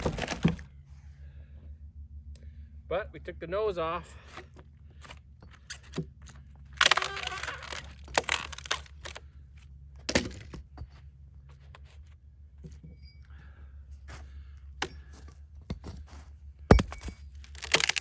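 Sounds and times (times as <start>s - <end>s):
wood knocking on wood: 0.0s - 0.6s, 16.7s - 18.0s
wood scraping and tearing: 0.0s - 0.6s, 6.8s - 9.2s, 16.7s - 18.0s.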